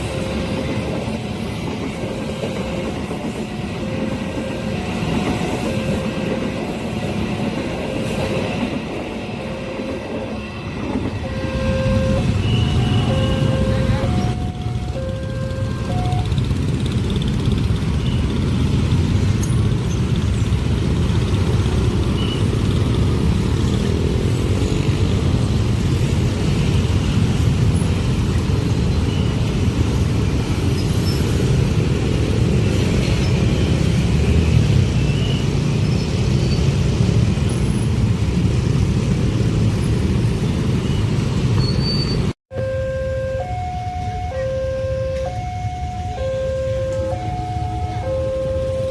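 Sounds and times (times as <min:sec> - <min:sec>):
train wheels rumbling on rails: 0:00.0 - 0:42.4.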